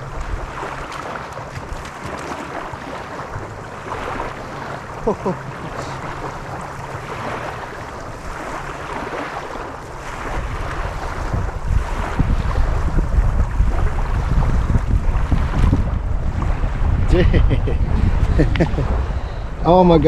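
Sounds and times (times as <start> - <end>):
lapping lake water: 0.0 - 20.0
wind buffeting microphone: 0.0 - 20.0.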